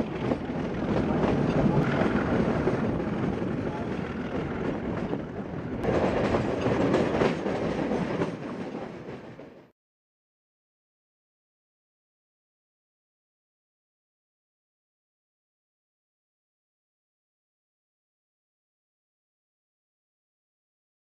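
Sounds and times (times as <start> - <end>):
train wheels rumbling on rails: 0.0 - 9.7.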